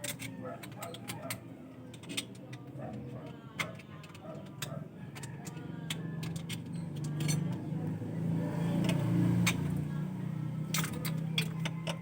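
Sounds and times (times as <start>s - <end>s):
hand tools clinking: 3.6s - 7.7s, 10.6s - 12.0s
engine humming: 3.8s - 12.0s.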